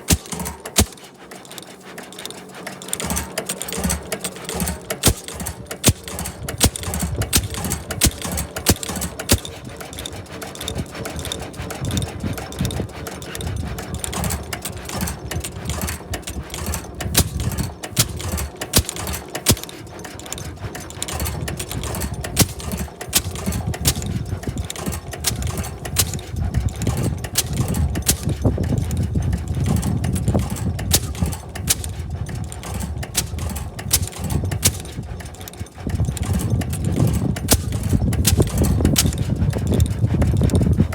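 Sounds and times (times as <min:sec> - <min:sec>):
gasoline engine popping: 0:00.0 - 0:40.9.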